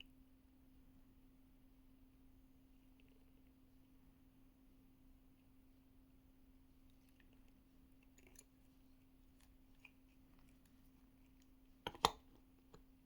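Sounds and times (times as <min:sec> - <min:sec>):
faint hum: 0:00.0 - 0:13.0
hard objects clicking and tapping: 0:11.9 - 0:12.9.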